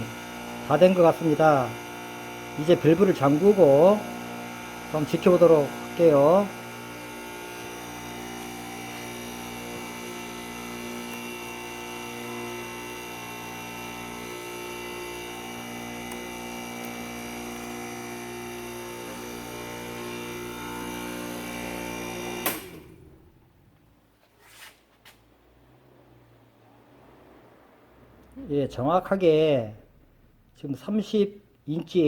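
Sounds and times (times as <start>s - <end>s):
vacuum pump running: 0.0s - 23.8s.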